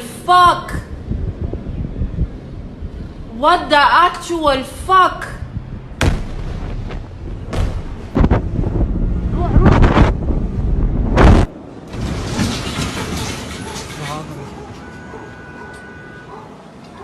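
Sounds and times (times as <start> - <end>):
rushing noise: 5.5 - 13.3
explosion booms: 5.9 - 12.8.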